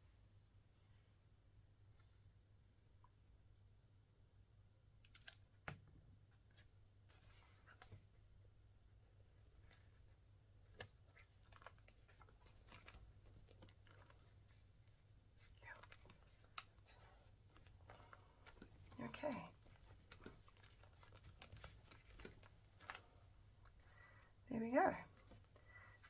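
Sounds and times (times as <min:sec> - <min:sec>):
paper rustling: 0:10.7 - 0:14.7, 0:15.4 - 0:23.9.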